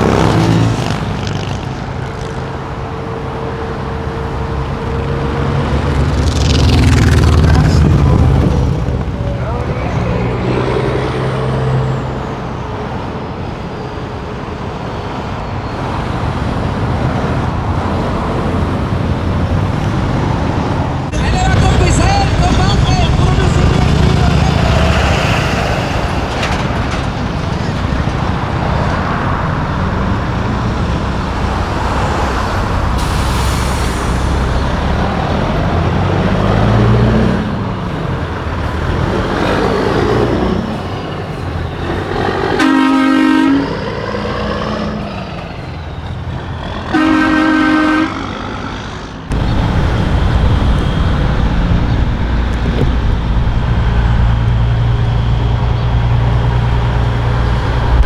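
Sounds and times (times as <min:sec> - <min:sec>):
diesel truck engines: 0:00.0 - 0:58.0
air horn blasts: 0:42.6 - 0:43.8, 0:46.9 - 0:48.3.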